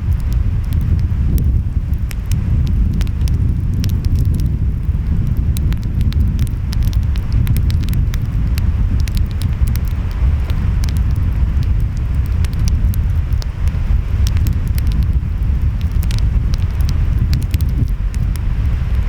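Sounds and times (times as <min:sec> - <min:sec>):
wind: 0:00.0 - 0:19.0
wood fire crackling and popping: 0:00.0 - 0:19.0.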